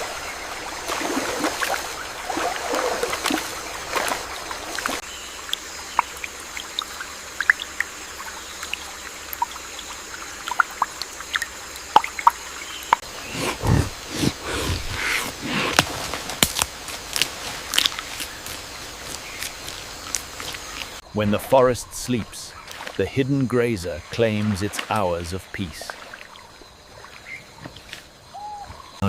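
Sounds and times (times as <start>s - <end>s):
sharp water drips: 0.0s - 13.1s, 17.7s - 27.6s
water trickling and splashing: 0.0s - 13.2s, 15.8s - 29.0s.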